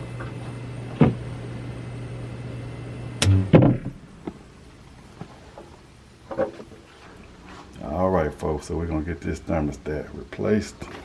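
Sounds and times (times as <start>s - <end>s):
furnace humming: 0.0s - 11.0s
knock: 3.2s - 4.0s
loud metallic clunks: 3.2s - 4.4s.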